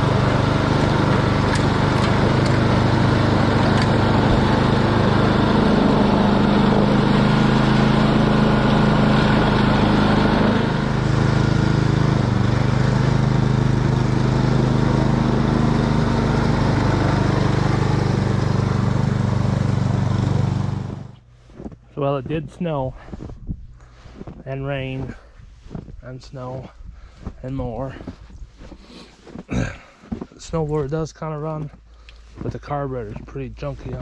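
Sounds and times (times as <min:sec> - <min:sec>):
small gasoline engine running: 0:00.0 - 0:21.2.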